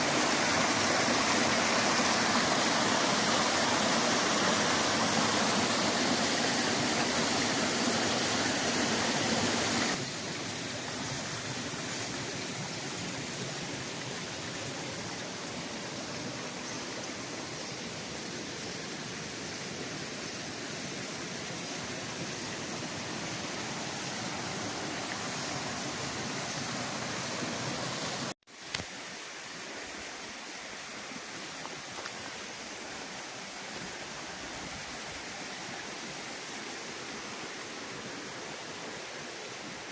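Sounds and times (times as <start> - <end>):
waterfall rushing: 0.0 - 18.2, 19.0 - 28.4.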